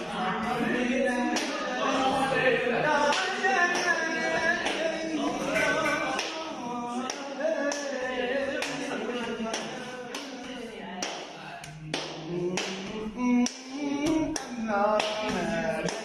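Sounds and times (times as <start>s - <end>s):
man singing unaccompanied: 0.0s - 10.8s, 11.6s - 16.0s
hand claps marking the beat: 3.1s - 7.9s, 8.6s - 16.0s.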